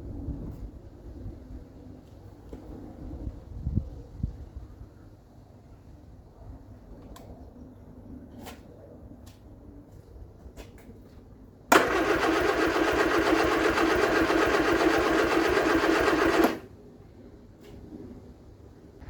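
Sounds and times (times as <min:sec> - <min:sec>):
starter motor cranking engine: 0:11.7 - 0:16.7.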